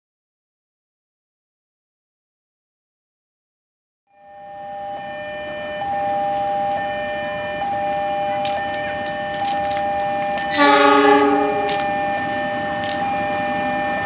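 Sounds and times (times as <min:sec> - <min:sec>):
train horn blast: 0:06.9 - 0:14.0.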